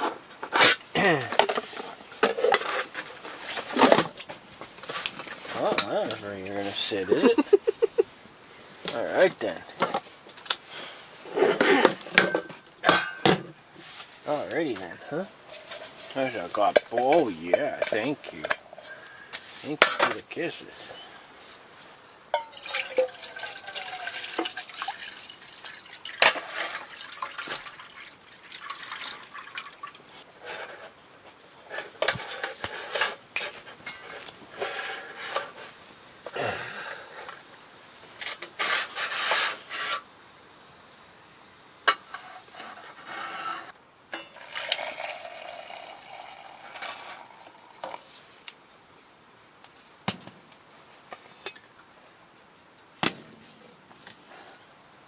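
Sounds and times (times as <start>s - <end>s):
dishes and utensils clinking: 11.5s - 13.6s, 15.5s - 19.0s, 22.3s - 27.8s, 44.1s - 48.0s
rubbing and scraping: 13.7s - 20.2s, 38.3s - 40.0s, 42.2s - 43.8s.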